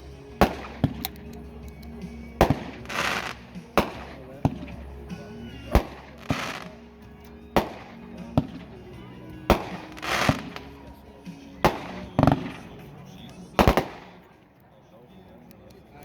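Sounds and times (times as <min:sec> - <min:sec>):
fireworks bangs: 0:00.0 - 0:01.2, 0:02.3 - 0:06.9, 0:07.5 - 0:11.0, 0:11.6 - 0:12.8, 0:13.6 - 0:14.3
hissing crackle: 0:02.4 - 0:04.6.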